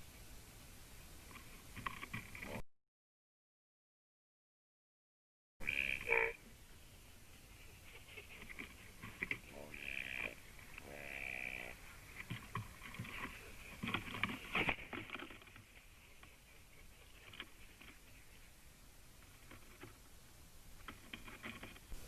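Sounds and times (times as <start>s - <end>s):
raven clicks and knocks: 1.3s - 2.6s, 7.9s - 18.4s, 19.2s - 20.1s, 20.8s - 22.0s
raven drawn-out call: 5.6s - 6.5s, 9.2s - 14.7s.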